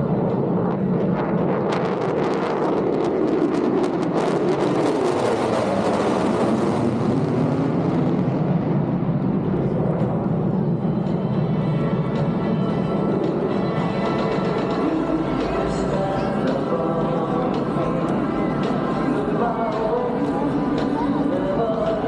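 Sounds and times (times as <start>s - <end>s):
fighter jet flying past: 0.0s - 22.0s.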